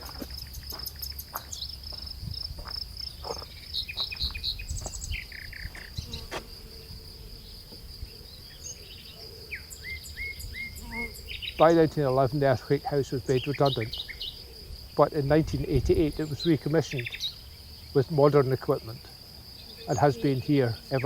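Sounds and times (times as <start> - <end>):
small bird chirping: 3.0 - 6.3, 7.4 - 11.8, 13.0 - 14.6, 16.0 - 18.0.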